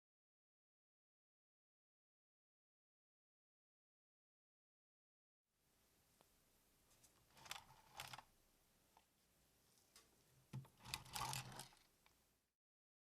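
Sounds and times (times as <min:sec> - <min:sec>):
plastic toy pieces clicking: 0:10.6 - 0:11.8.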